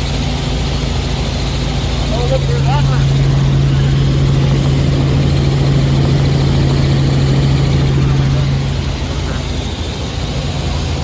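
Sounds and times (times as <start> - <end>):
helicopter rotor hum: 0.0 - 11.0
turbine and air rush: 0.0 - 11.0.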